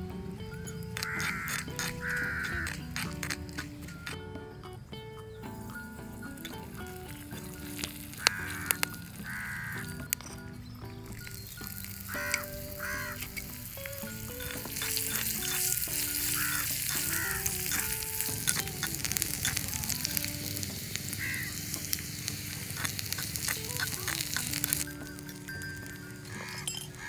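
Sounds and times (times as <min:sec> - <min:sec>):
onion sizzling in a pot: 0:05.6 - 0:10.4, 0:11.0 - 0:27.0.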